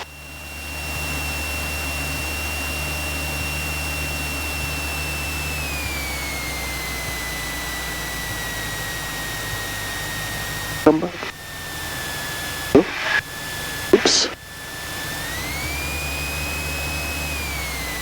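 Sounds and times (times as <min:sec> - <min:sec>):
high thin whine: 0:10.9 - 0:11.4, 0:12.8 - 0:13.2, 0:14.0 - 0:14.4.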